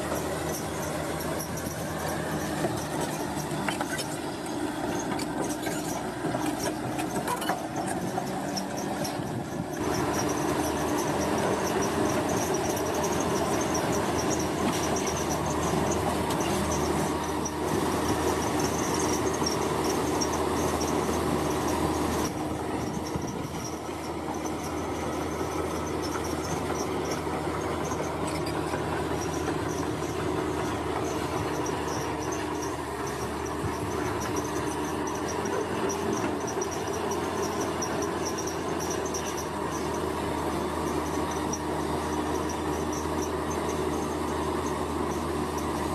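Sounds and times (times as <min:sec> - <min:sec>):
bulldozer diesel engine running: 0:00.0 - 0:45.9
insects chirping: 0:27.9 - 0:40.0.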